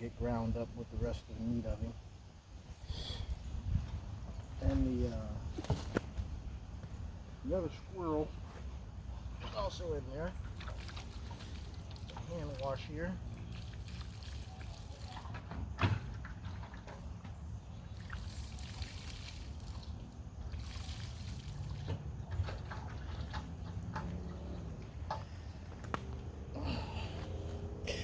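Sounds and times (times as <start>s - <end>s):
water trickling and splashing: 9.6s - 26.9s.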